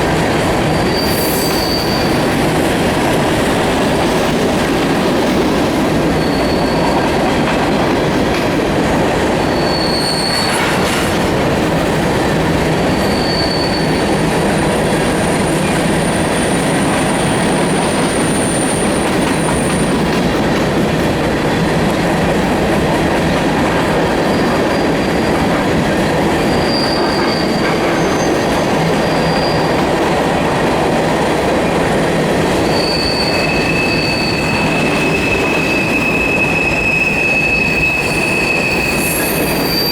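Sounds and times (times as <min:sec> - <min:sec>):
freight train rumbling past: 0:00.0 - 0:39.9
high-pitched wheel squeals: 0:00.7 - 0:02.3, 0:06.1 - 0:07.1, 0:09.5 - 0:10.9, 0:12.9 - 0:14.5, 0:26.4 - 0:29.9, 0:32.6 - 0:39.9.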